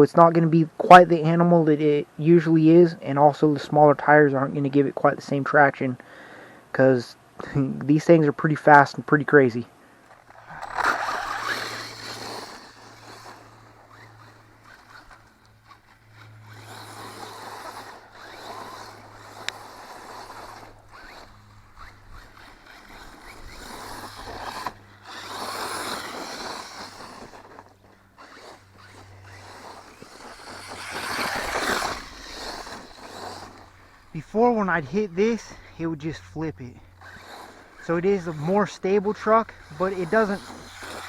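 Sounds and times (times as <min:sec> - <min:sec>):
rc truck driving past: 0:09.5 - 0:41.0.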